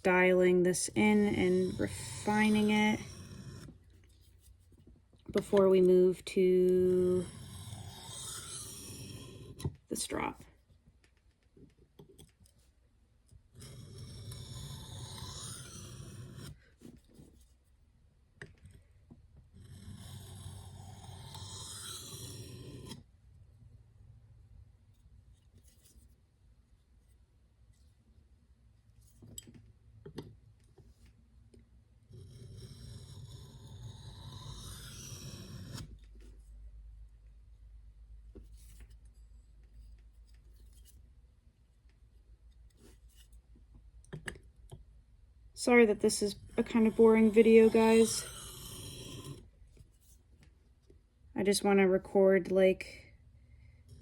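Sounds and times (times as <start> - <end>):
knife scraping on sharpening stone: 7.2 - 9.6, 13.6 - 16.5, 46.3 - 49.4.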